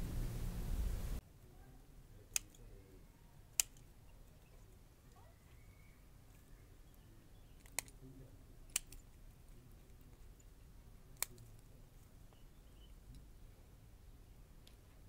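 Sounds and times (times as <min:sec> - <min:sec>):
scissors snipping shoots: 0:02.3 - 0:02.7, 0:03.5 - 0:03.9, 0:07.6 - 0:08.0, 0:08.7 - 0:09.1, 0:11.2 - 0:11.6.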